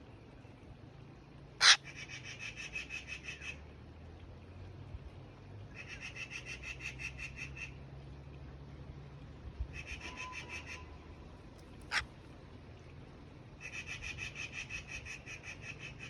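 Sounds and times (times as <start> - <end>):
small bird trilling: 11.8 - 12.0.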